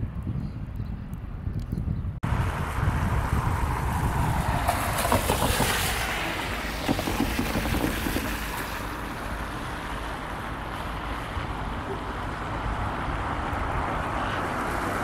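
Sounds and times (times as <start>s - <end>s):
train rumble: 2.8s - 11.7s
wheels clicking on rails: 4.4s - 9.4s.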